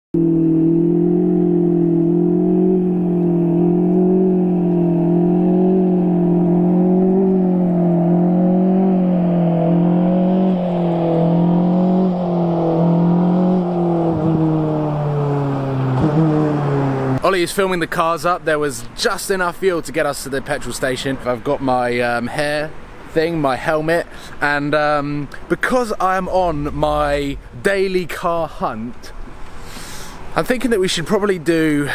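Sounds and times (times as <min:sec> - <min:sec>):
car engine running high: 0:00.2 - 0:17.3.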